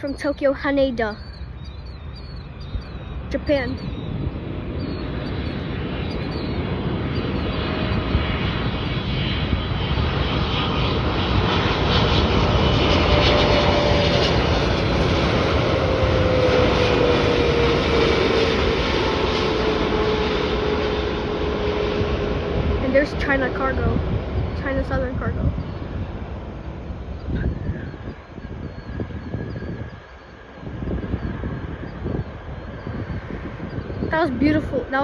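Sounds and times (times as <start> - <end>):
jet engines roaring: 0.0 - 35.0.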